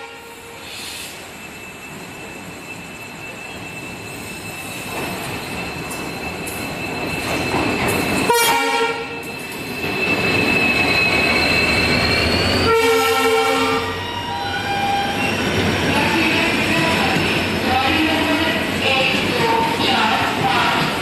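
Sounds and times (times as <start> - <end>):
train horn blast: 0.0 - 0.4, 8.3 - 9.1, 12.7 - 14.0
train passing: 0.0 - 21.0.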